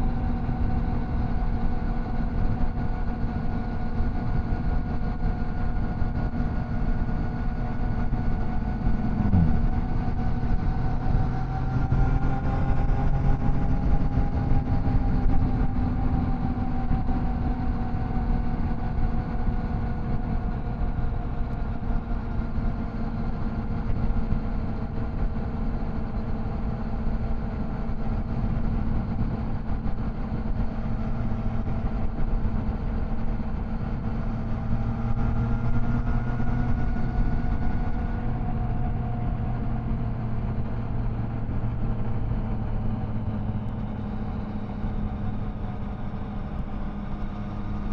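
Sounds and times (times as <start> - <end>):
wind and road noise: 0.0 - 47.9
motorcycle engine running: 2.2 - 22.4.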